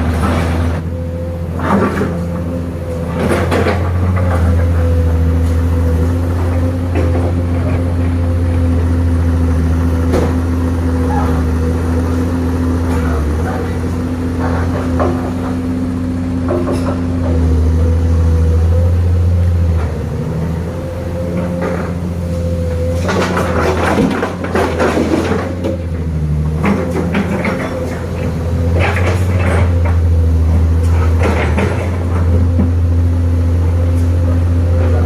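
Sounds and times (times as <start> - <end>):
truck diesel engine running: 0.0 - 35.0
knocks and rattles: 23.0 - 32.8.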